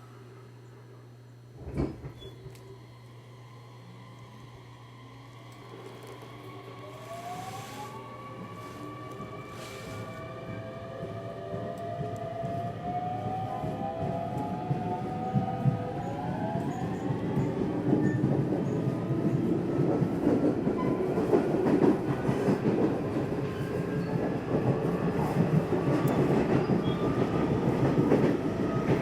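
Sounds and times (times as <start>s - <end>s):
electric train motor whine: 1.6s - 17.6s.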